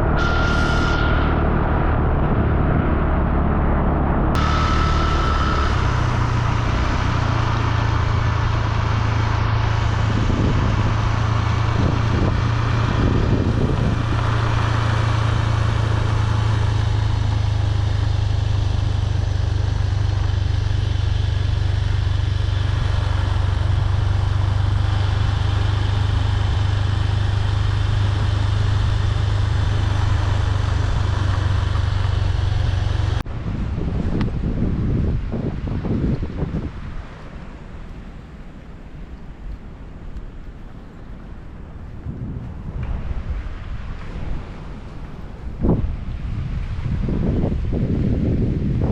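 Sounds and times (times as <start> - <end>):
low engine drone: 0.0 - 48.9
road and wind noise: 0.0 - 48.9.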